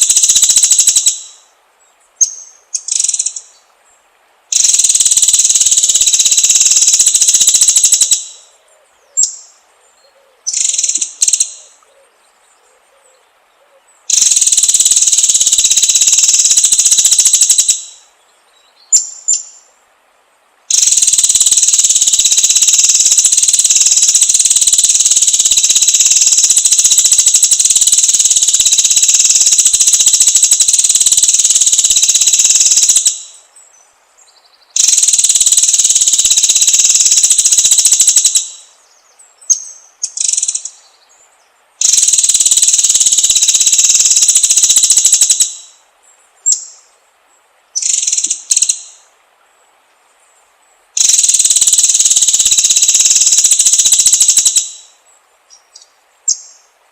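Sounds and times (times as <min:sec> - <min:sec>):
high-pitched insect buzzing: 0:20.7 - 0:33.4, 0:34.8 - 0:38.7, 0:51.0 - 0:54.9.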